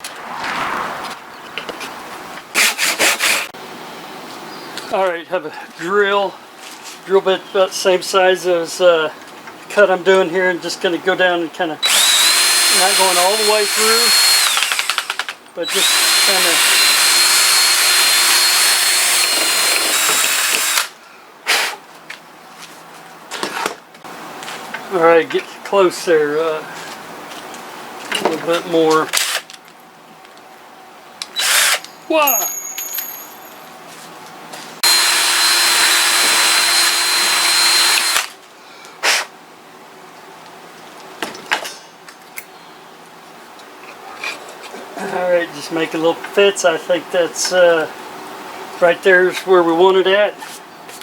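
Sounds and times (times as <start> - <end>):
electric drill boring into wood: 11.8 - 20.9, 31.4 - 31.8, 34.8 - 38.3.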